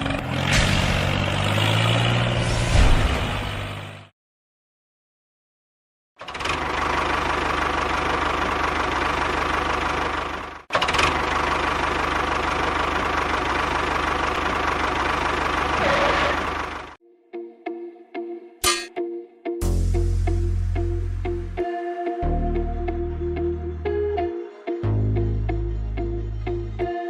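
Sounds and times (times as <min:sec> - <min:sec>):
small tractor motor running: 0:06.2 - 0:17.0.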